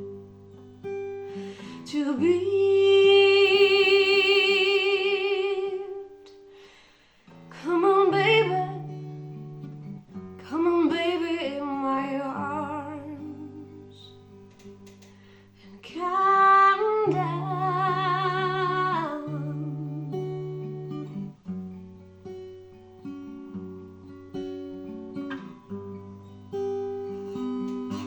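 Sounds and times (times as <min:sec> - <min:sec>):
plucked acoustic guitar: 0:00.0 - 0:06.6, 0:07.3 - 0:28.0
person singing with vibrato: 0:01.4 - 0:06.2, 0:15.7 - 0:20.2.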